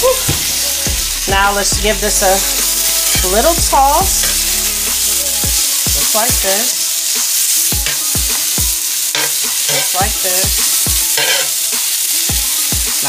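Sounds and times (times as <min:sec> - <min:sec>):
food sizzling on a griddle: 0:00.0 - 0:13.0
metal spatula stirring food: 0:04.2 - 0:12.0.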